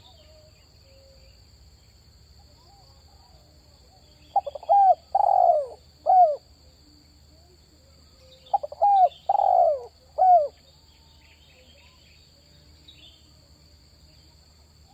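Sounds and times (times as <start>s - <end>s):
dove cooing: 4.3s - 6.5s, 8.5s - 10.6s.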